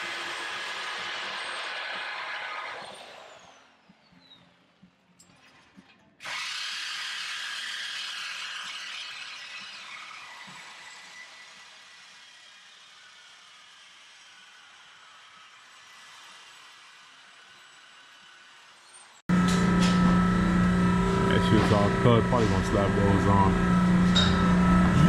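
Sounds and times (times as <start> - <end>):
power cutting tool whine: 0.0 - 3.9, 6.2 - 25.0.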